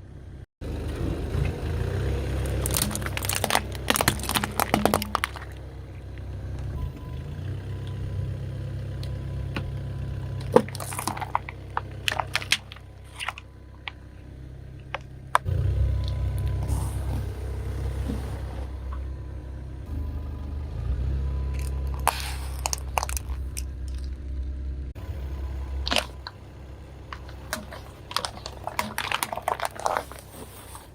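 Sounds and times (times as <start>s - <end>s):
car low rumble: 0.0s - 30.9s
tyre crushing crunchy objects: 0.9s - 6.3s, 10.3s - 14.0s, 21.4s - 24.1s, 25.0s - 26.4s, 27.0s - 30.9s.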